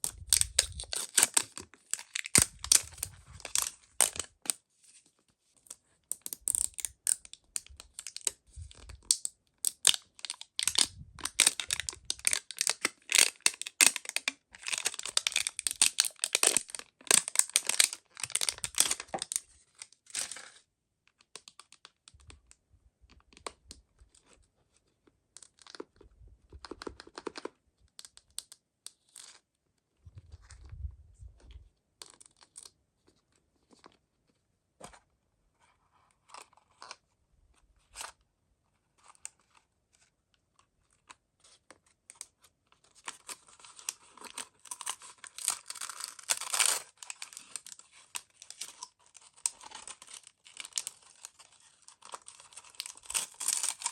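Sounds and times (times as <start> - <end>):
packaging tearing and crinkling: 0.0 - 4.6, 6.1 - 20.6, 43.0 - 53.9.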